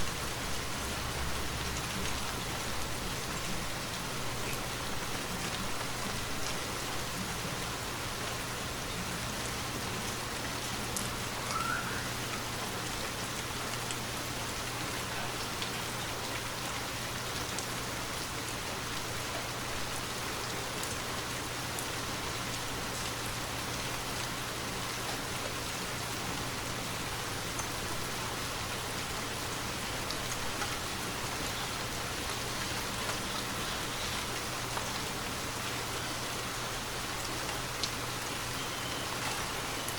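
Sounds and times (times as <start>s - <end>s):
steady rainfall hiss: 0.0s - 39.9s
raindrop ticks: 10.0s - 14.0s, 14.6s - 18.6s, 27.5s - 28.1s, 37.1s - 38.2s.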